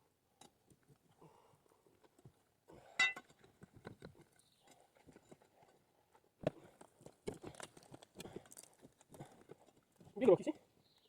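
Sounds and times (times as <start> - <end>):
sharp ringing stone clink: 3.0 - 3.2.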